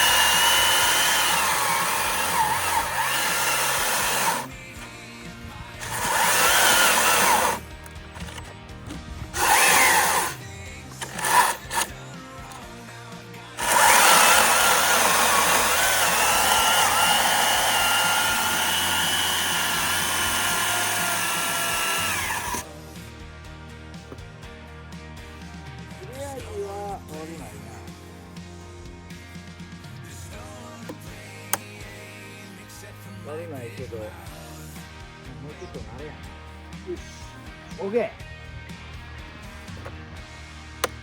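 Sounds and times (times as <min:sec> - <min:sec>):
battery chainsaw whining: 0:00.0 - 0:22.7, 0:39.2 - 0:41.0.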